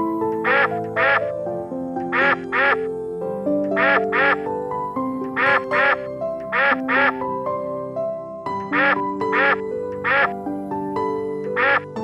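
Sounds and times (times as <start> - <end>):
background music: 0.0 - 12.0
duck quacking: 0.4 - 1.3, 2.0 - 2.9, 3.7 - 4.5, 5.3 - 7.2, 8.7 - 10.3, 11.6 - 11.9.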